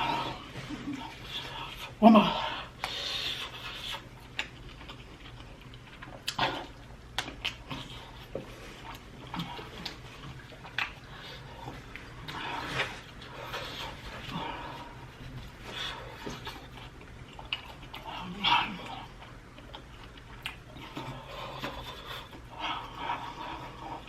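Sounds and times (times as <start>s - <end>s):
person chewing: 0.0s - 24.0s
sharp mouth clicks and smacks: 2.8s - 8.0s, 8.9s - 11.1s, 19.5s - 22.5s.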